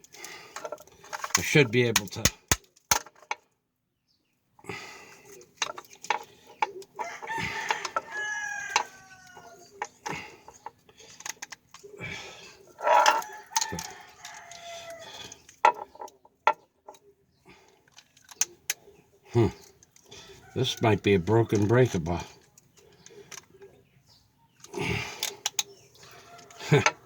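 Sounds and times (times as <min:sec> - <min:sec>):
metal tools clicking and knocking: 0:05.6 - 0:11.9, 0:12.8 - 0:17.0, 0:24.6 - 0:27.0
rooster crowing: 0:07.0 - 0:09.6, 0:12.8 - 0:15.3, 0:26.1 - 0:27.0.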